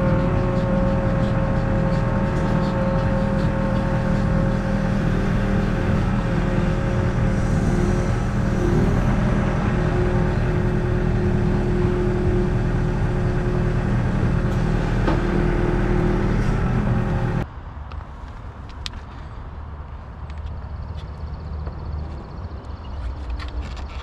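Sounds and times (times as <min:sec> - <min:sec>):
vehicle engine running: 0:00.0 - 0:17.4.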